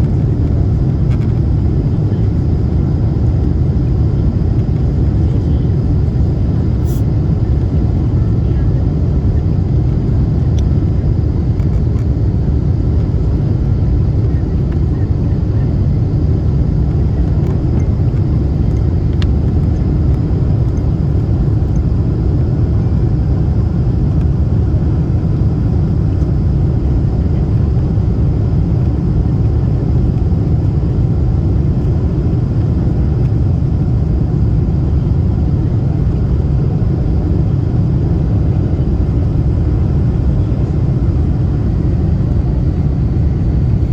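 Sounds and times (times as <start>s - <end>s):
airliner engines and airflow rumble: 0.0s - 43.9s.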